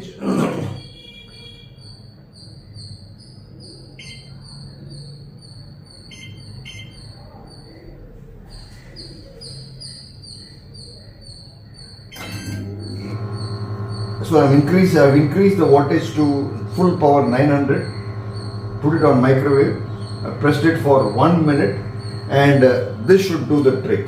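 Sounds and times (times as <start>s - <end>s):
microwave control panel beeps: 0.8s - 7.3s, 11.9s - 24.0s
fast high electronic chirping: 2.4s - 7.7s, 9.5s - 24.0s
low steady hum: 12.2s - 24.0s.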